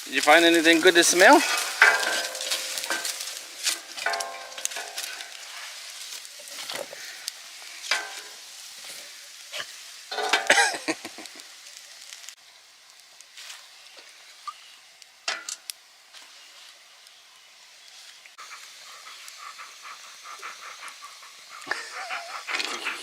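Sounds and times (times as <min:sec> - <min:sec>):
steak sizzling: 0:00.0 - 0:22.5
cooking utensils knocking and scraping: 0:01.4 - 0:05.5, 0:07.9 - 0:08.4, 0:10.1 - 0:10.6.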